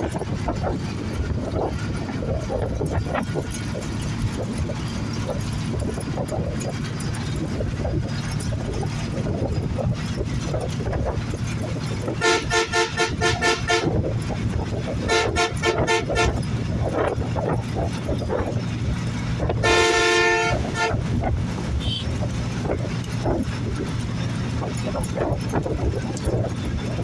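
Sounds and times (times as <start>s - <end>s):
bus rumble and road noise: 0.0s - 27.0s
vehicle horn beeping: 12.0s - 14.1s, 15.0s - 16.5s, 19.6s - 22.2s.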